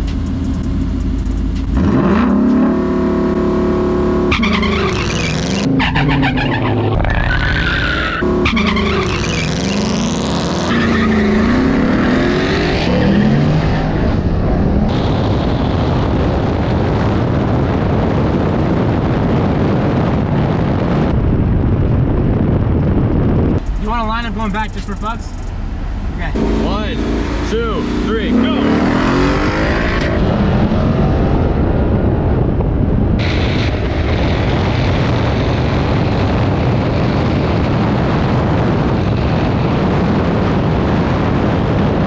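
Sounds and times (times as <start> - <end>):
car engine revving: 0.0 - 17.8, 23.6 - 41.6
tyre squeal: 4.3 - 9.9.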